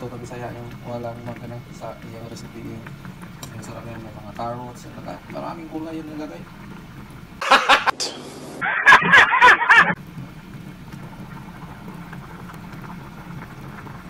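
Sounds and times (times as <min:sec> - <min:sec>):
man laughing loudly: 0:07.4 - 0:08.0, 0:08.6 - 0:10.0
pot of soup simmering: 0:10.0 - 0:14.0.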